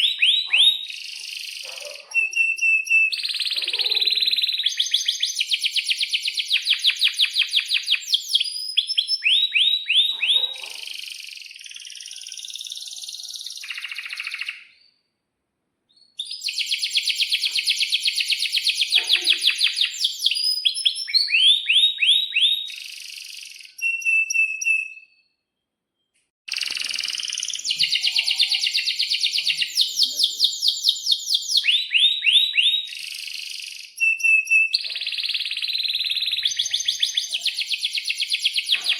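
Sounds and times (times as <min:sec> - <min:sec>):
canary singing trills: 0:00.0 - 0:15.0, 0:15.9 - 0:25.2, 0:26.5 - 0:38.9.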